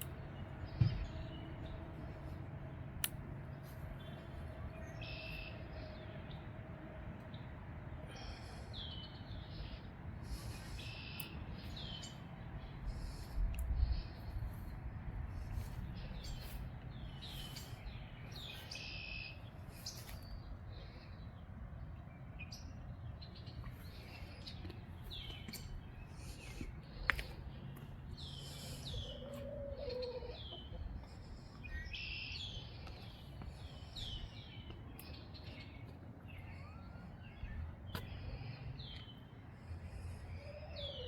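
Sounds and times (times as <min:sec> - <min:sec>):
songbirds chirping: 0:00.0 - 0:41.0
wind rumble on microphone: 0:12.5 - 0:16.8.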